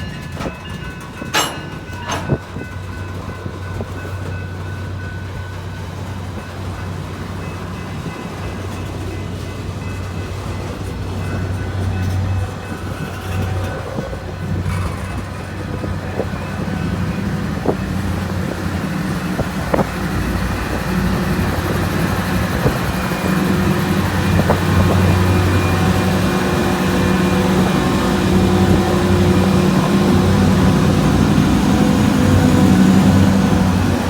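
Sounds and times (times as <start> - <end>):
diesel locomotive engine hum: 0.0 - 34.0
sharp metallic clanks: 0.3 - 2.7.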